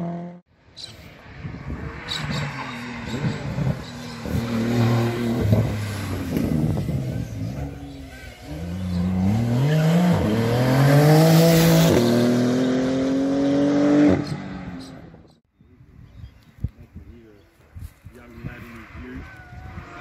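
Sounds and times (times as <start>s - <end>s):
sports car engine accelerating: 1.7s - 15.1s.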